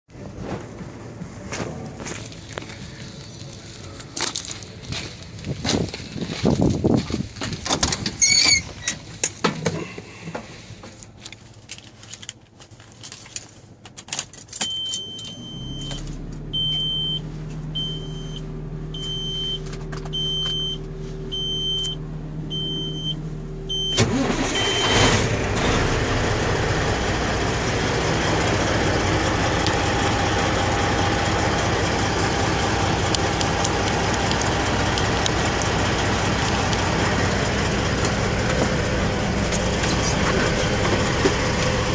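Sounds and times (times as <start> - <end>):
diesel engine running: 0.1 - 41.9
high warning beep: 14.6 - 25.1
steady hum: 15.0 - 25.4.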